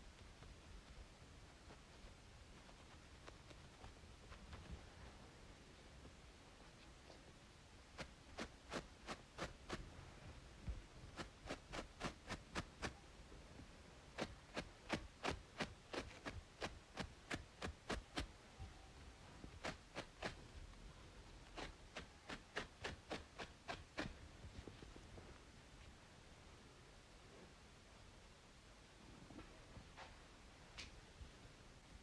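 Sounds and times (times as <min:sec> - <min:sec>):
scratching on braided scalp: 0:00.0 - 0:05.2, 0:07.9 - 0:10.2, 0:10.9 - 0:13.0, 0:14.1 - 0:18.3, 0:19.4 - 0:25.0
faint white-noise hiss: 0:00.0 - 0:32.0.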